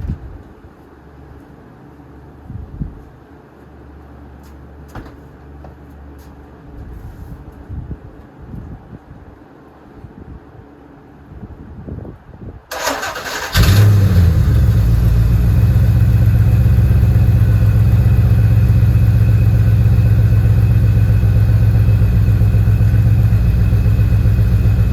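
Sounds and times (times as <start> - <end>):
engine starter cranking: 12.7 - 14.5
car engine idling: 13.0 - 24.9.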